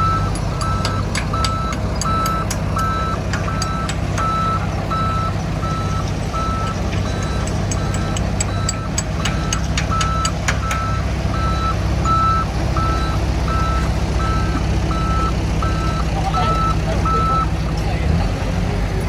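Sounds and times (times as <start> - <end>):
reversing alarm beeping: 0.0 - 18.2
diesel engine rumble: 0.0 - 19.0
sharp clicks or clanks: 0.2 - 4.6, 6.6 - 10.9.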